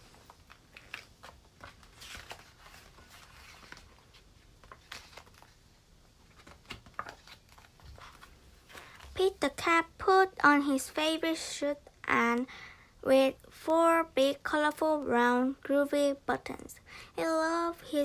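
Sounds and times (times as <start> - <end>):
book pages turning: 0.0 - 9.6.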